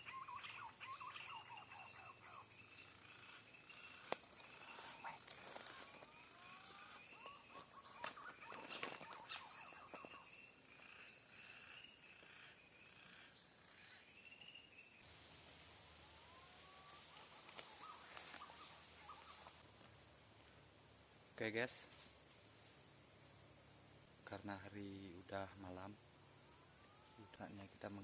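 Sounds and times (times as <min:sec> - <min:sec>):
birds chirping and whistling: 0:00.0 - 0:19.6
high insect whine: 0:00.0 - 0:28.0.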